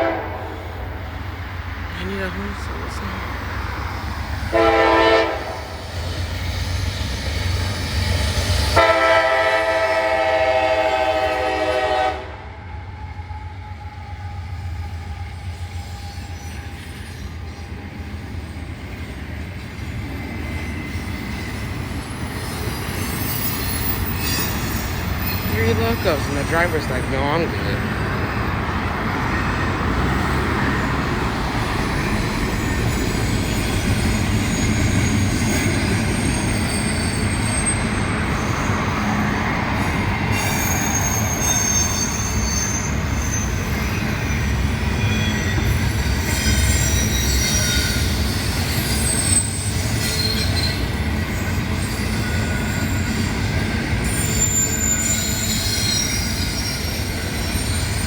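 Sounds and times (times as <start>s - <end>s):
train wheels rumbling on rails: 0.0s - 58.0s
high wheel squeals: 20.0s - 58.0s.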